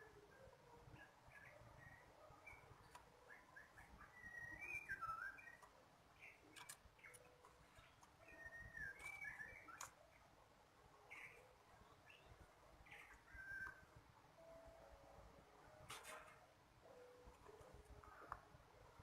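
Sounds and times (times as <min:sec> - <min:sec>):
songbirds chirping and whistling: 0:00.0 - 0:19.0
sharp clicks: 0:05.6 - 0:08.2.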